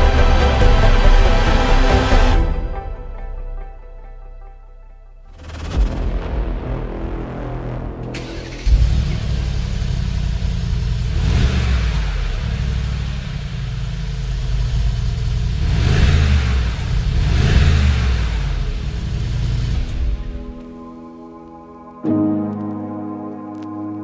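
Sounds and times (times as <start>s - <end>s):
car engine revving: 0.0s - 2.5s, 5.3s - 20.4s.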